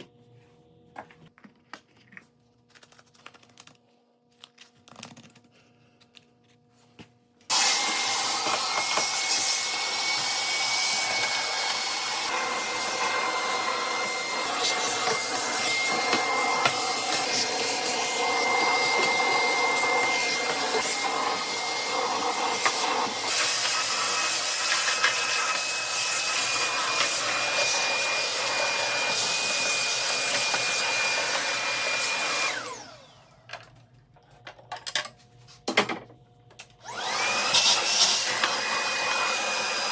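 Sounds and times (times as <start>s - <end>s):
vacuum cleaner running: 7.5s - 33.7s, 36.8s - 39.9s.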